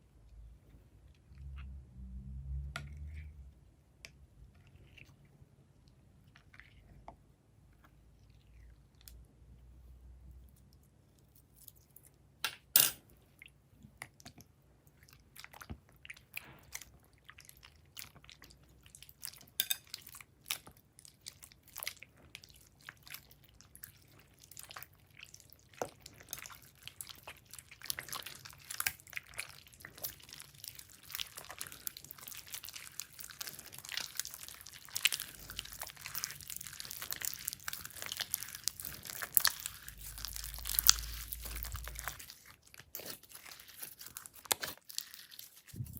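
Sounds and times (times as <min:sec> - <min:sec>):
slime clicking and crackling: 0:22.7 - 0:45.9.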